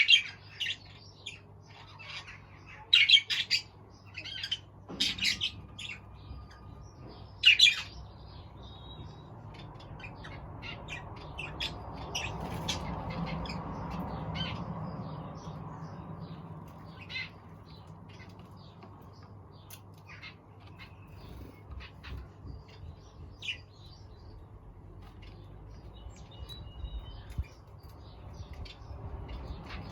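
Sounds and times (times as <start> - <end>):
birds chirping and squawking: 0.0 - 29.9.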